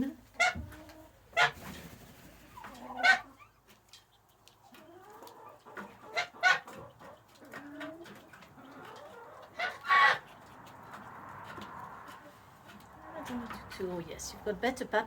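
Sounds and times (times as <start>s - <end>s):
chickens clucking: 0.0s - 15.0s
chicken squawk: 0.4s - 1.7s, 2.4s - 3.5s, 5.0s - 8.0s, 8.6s - 10.5s
chicken loud calls: 2.4s - 3.4s, 8.6s - 10.4s.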